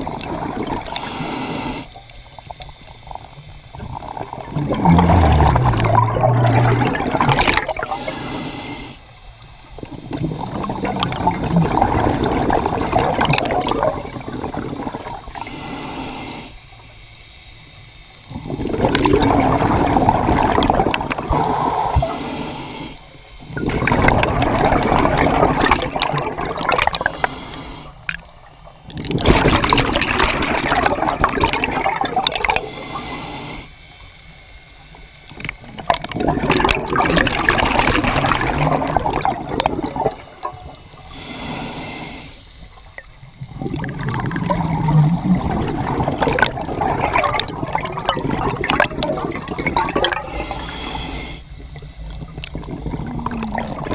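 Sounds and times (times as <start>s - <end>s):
bubbles gurgling: 0.0s - 1.2s, 2.2s - 8.4s, 9.7s - 15.6s, 18.2s - 22.2s, 23.4s - 27.4s, 28.0s - 33.0s, 35.3s - 41.3s, 42.6s - 53.9s
diver breathing through regulator: 0.8s - 2.0s, 4.6s - 9.2s, 15.3s - 16.6s, 21.2s - 23.2s, 26.9s - 28.1s, 32.4s - 34.0s, 40.9s - 42.8s, 50.1s - 51.9s.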